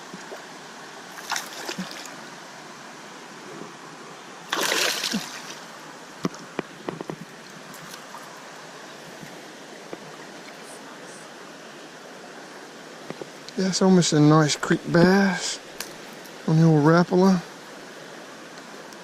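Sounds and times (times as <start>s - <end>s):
creek running: 0.0s - 19.0s
fish splashing at surface: 4.5s - 5.6s.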